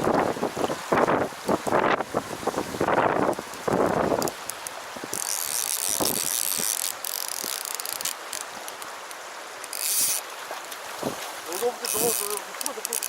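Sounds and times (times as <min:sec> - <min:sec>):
reel clicks: 0:03.0 - 0:10.8, 0:11.4 - 0:13.0
fishing reel drag buzzing: 0:04.2 - 0:08.9, 0:09.6 - 0:10.3, 0:11.5 - 0:13.0.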